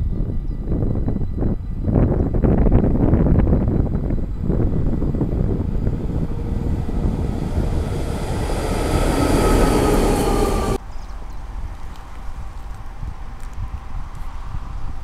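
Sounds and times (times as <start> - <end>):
wind noise on microphone: 0.0 - 15.0
train rumbling on rails: 2.2 - 13.3
faint whining tone: 3.1 - 10.8.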